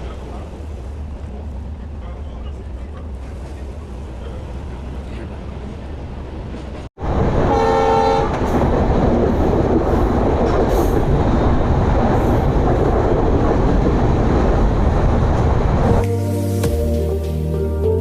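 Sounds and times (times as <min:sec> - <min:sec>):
train rumbling at speed: 0:00.0 - 0:16.2
train horn blast: 0:07.5 - 0:08.4.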